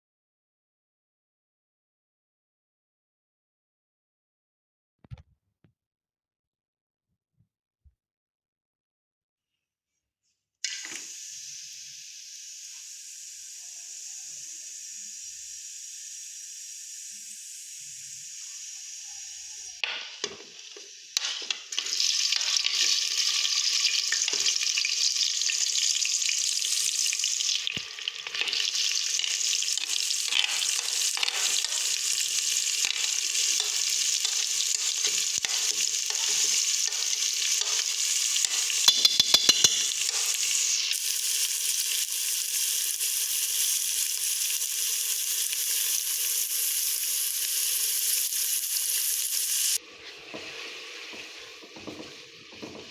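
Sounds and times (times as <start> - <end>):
food sizzling in hot oil: 10.6 - 52.9
scraping of stirring: 29.2 - 40.6, 49.8 - 52.9.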